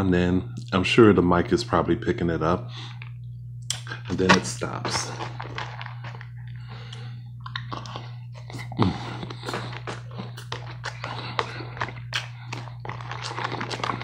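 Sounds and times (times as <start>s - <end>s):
steady low hum: 0.0s - 14.0s
person chewing crunchy salad: 4.8s - 14.0s.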